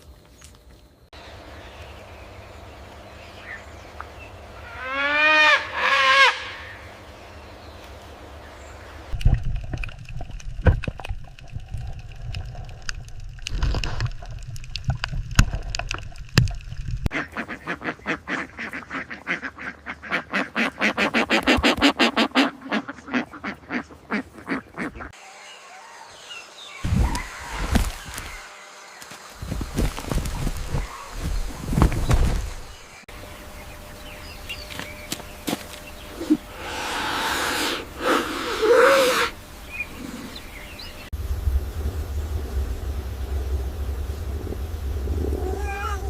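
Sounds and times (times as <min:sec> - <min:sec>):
waterfowl honking: 0:04.6 - 0:06.8, 0:17.1 - 0:25.2.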